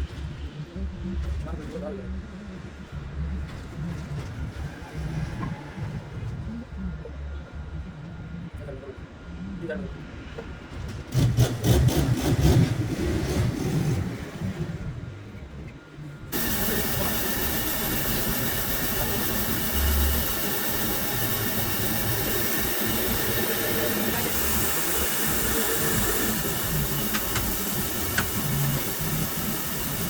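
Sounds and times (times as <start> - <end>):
steady hissing: 16.3 - 30.0.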